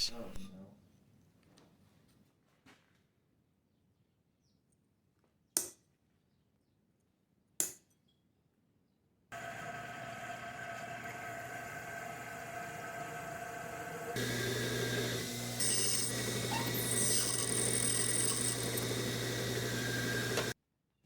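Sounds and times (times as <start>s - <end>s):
electric drill whining: 9.4s - 20.6s.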